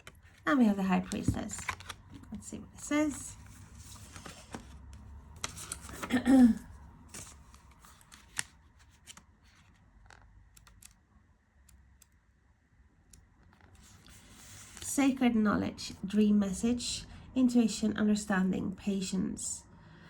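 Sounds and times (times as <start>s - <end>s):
book pages turning and rustling: 0.0s - 6.2s, 7.0s - 11.0s, 13.4s - 14.9s.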